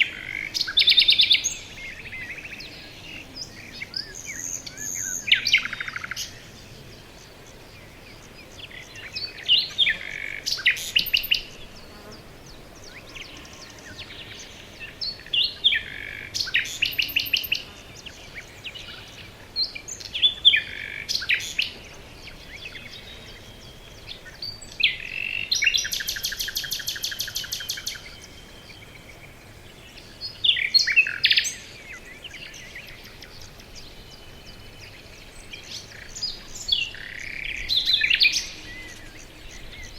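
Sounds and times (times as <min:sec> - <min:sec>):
faint steady hiss: 0:00.0 - 0:39.9
songbirds chirping: 0:00.0 - 0:39.9.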